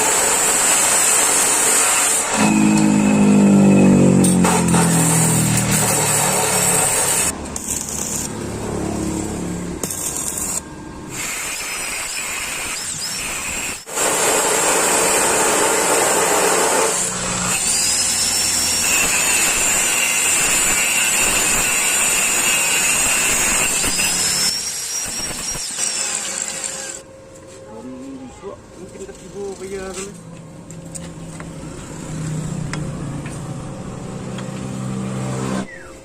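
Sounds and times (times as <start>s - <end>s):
electric power tool whining: 0.0s - 8.9s.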